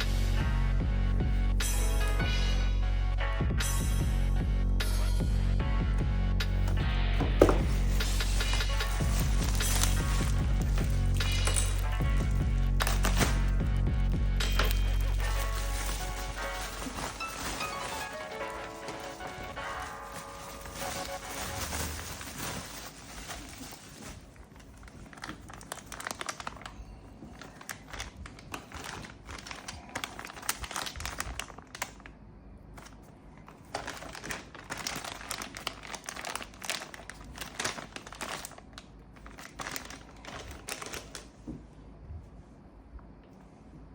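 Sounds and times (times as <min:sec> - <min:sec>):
packaging crinkling and rustling: 0:06.6 - 0:41.5.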